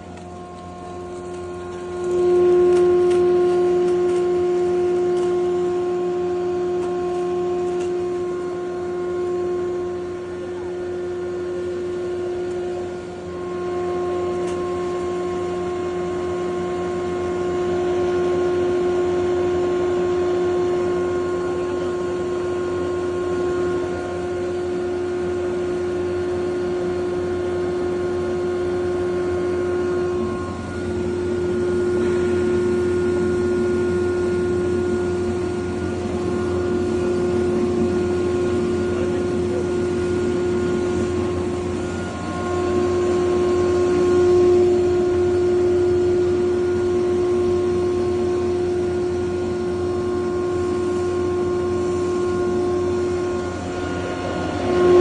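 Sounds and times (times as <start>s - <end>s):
electric grinder humming: 0.0s - 16.3s, 28.3s - 55.0s.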